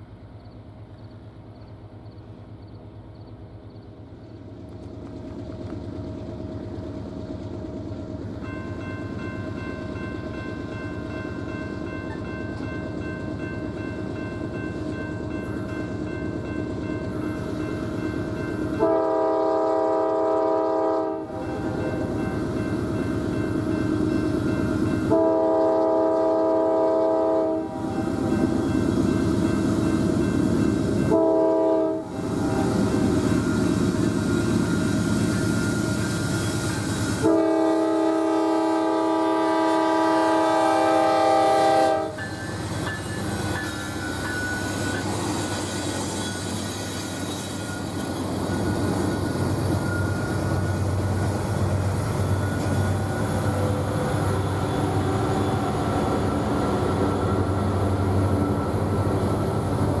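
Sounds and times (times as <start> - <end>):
train rumble and wheel clatter: 0.0 - 60.0
locomotive horn blasts: 18.7 - 22.1, 25.0 - 28.6, 31.0 - 33.2, 37.1 - 42.2.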